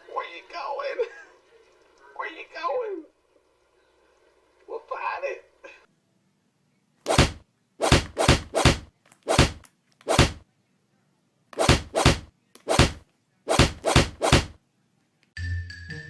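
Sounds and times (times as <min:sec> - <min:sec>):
loud sharp thumps: 0:07.1 - 0:10.4, 0:11.6 - 0:14.6.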